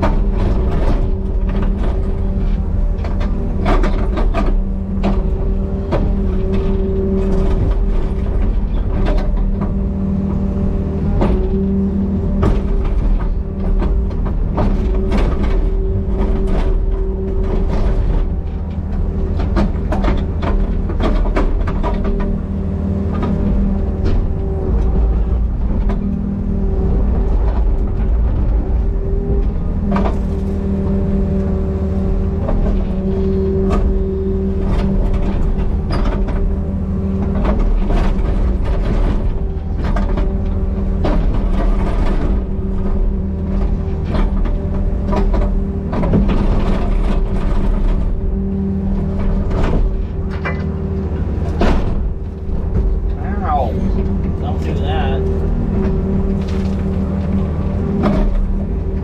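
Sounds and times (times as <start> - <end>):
diesel excavator engine running: 0.0 - 59.0
knocks and clanks: 27.3 - 59.0.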